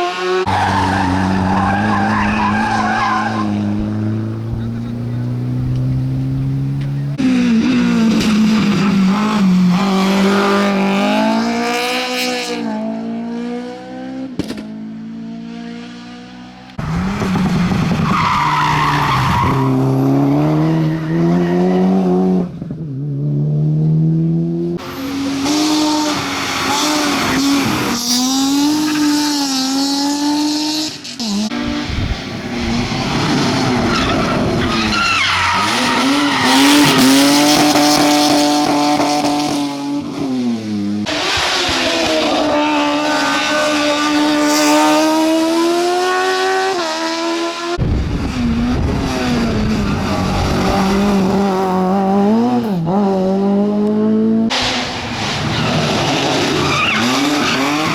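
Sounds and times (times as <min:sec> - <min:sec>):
tyres skidding on road: 0:00.0 - 0:12.5, 0:16.7 - 0:22.8, 0:24.8 - 0:57.9
rally car engines revving: 0:00.0 - 0:57.9.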